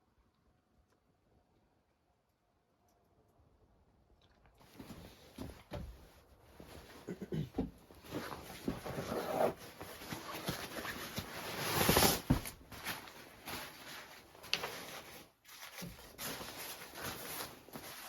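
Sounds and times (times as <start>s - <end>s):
objects rustling and knocking: 4.7s - 18.0s
scraping rustle: 8.0s - 18.0s.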